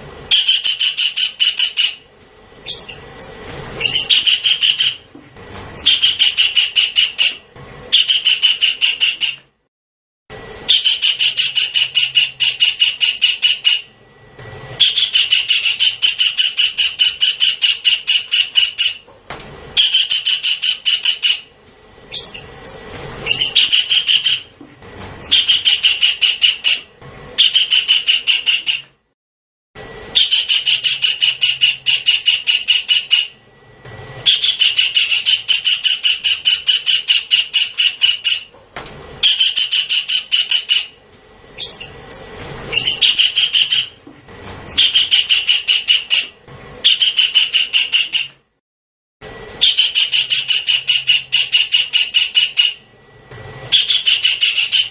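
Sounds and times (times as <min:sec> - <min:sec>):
kingfisher rattling call: 0:00.3 - 0:02.0, 0:02.7 - 0:05.0, 0:05.8 - 0:09.4, 0:10.7 - 0:13.9, 0:14.8 - 0:19.0, 0:19.8 - 0:21.5, 0:22.1 - 0:24.5, 0:25.2 - 0:28.8, 0:30.2 - 0:33.4, 0:34.3 - 0:38.5, 0:39.2 - 0:41.0, 0:41.6 - 0:44.0, 0:44.7 - 0:48.3, 0:49.6 - 0:52.8, 0:53.7 - 0:54.9.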